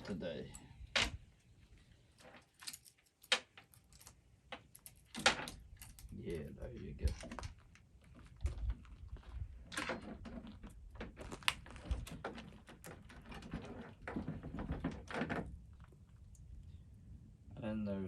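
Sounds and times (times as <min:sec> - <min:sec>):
metal saw chain clicking and rattling: 0:02.2 - 0:06.2.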